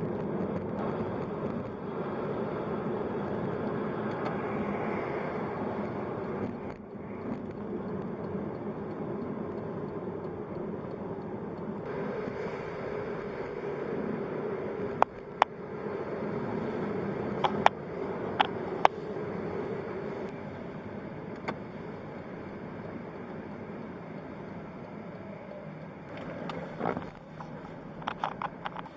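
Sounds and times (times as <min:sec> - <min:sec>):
car engine and road hum: 0:00.0 - 0:28.9.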